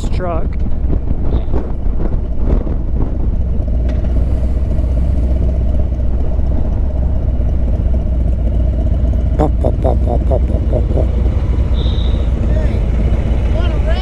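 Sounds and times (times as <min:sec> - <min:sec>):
wind on microphone: 0:00.0 - 0:05.5
constant hum: 0:00.0 - 0:14.0
motorcycle engine rumbling: 0:00.4 - 0:14.0.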